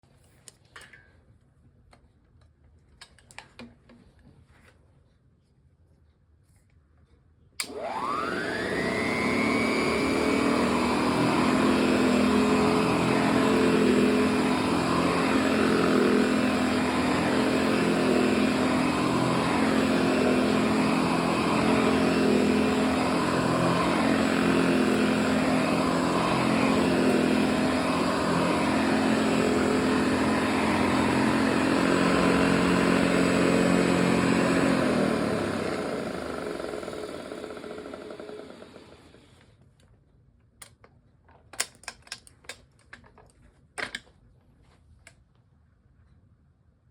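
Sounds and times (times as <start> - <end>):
vacuum cleaner switch click: 7.6 - 9.0
vacuum cleaner motor humming: 7.6 - 39.4.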